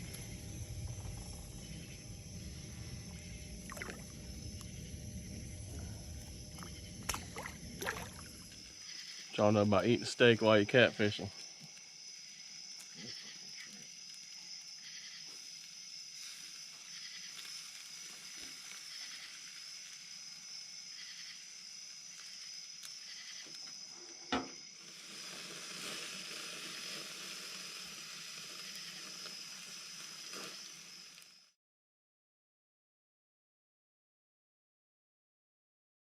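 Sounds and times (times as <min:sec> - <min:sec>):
night insects chorus: 0:00.0 - 0:31.6
soft hiss: 0:24.8 - 0:31.5.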